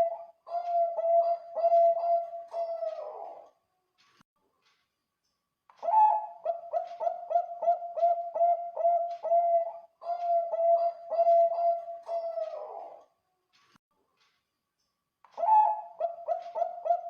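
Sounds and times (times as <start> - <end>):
dove cooing: 0.0 - 3.4, 5.8 - 13.0, 15.4 - 17.0.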